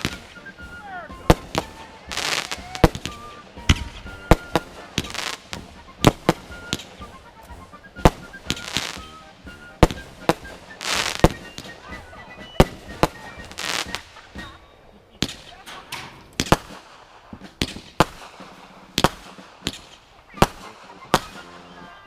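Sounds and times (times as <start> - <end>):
fireworks hissing bursts: 0.0 - 14.6
fireworks bangs: 0.0 - 21.9.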